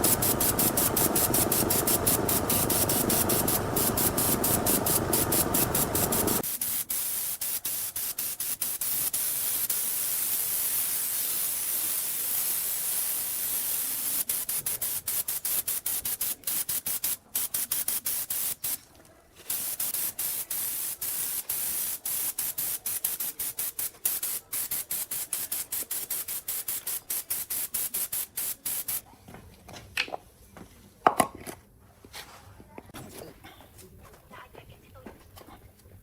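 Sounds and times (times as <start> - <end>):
high spraying hiss: 0.0 - 18.8, 19.5 - 29.0.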